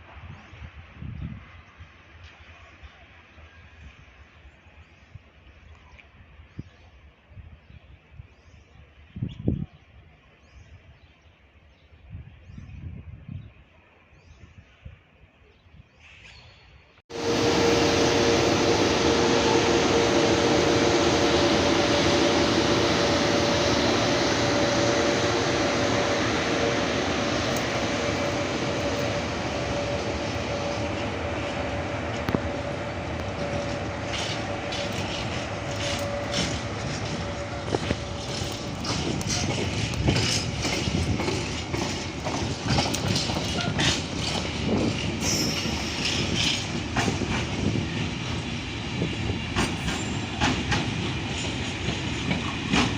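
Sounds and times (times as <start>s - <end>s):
train passing with humming rush: 16.2s - 52.9s
wheels clattering over rail joints: 31.7s - 47.8s.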